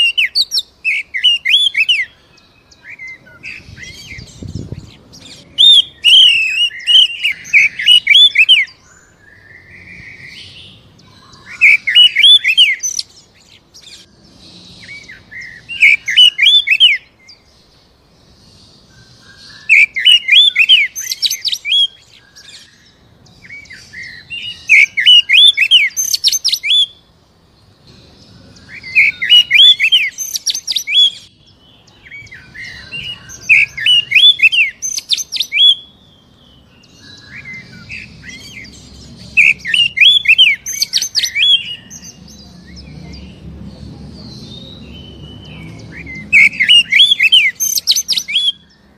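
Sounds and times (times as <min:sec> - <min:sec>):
bird singing whistled phrases: 0:00.0 - 0:04.5, 0:05.2 - 0:13.1, 0:14.8 - 0:17.4, 0:19.0 - 0:27.0, 0:28.6 - 0:36.0, 0:39.4 - 0:43.3, 0:44.5 - 0:48.9
soft bird calls: 0:00.0 - 0:48.9.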